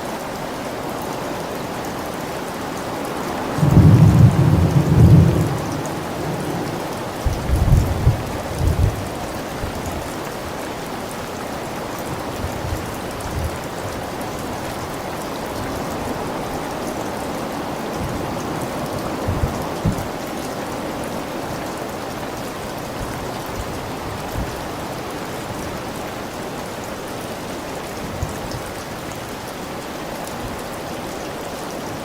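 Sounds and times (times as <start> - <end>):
heavy rain: 0.0 - 32.0
thunder rumbling: 3.6 - 10.1, 17.8 - 20.7.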